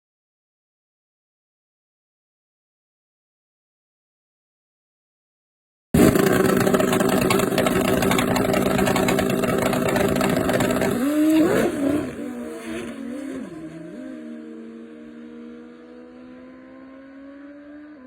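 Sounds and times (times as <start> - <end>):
motorcycle engines at high revs: 6.0 - 18.0.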